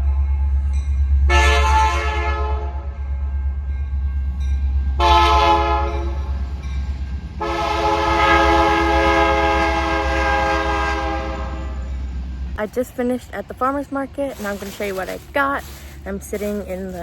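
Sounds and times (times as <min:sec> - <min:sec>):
train horn blasts: 0:01.3 - 0:03.0, 0:05.0 - 0:06.3, 0:07.4 - 0:11.9.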